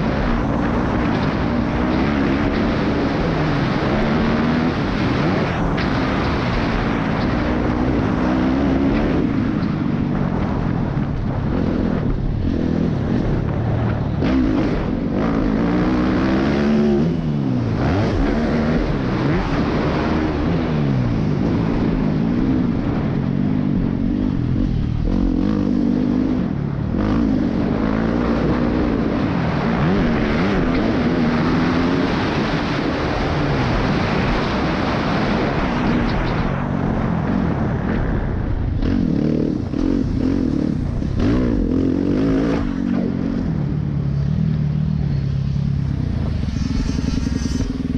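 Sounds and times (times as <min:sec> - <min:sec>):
motorcycle engine revving: 0:00.0 - 0:47.9
wind noise: 0:00.0 - 0:47.9.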